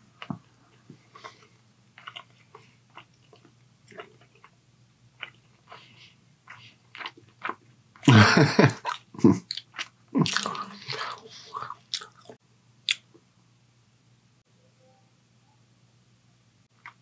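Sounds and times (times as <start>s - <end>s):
wet chewing and lip smacks: 1.1s - 4.6s, 5.2s - 8.1s, 8.8s - 11.0s, 11.6s - 13.1s.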